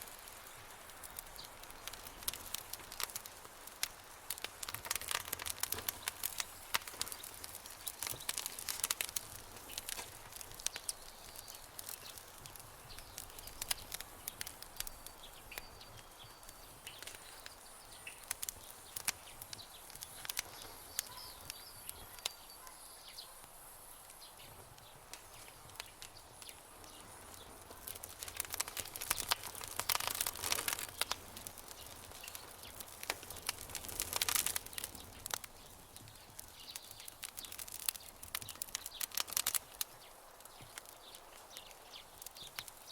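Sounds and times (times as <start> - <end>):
wood fire crackling and popping: 0.0 - 42.9
faint bird chirps: 14.8 - 18.3, 18.9 - 23.4.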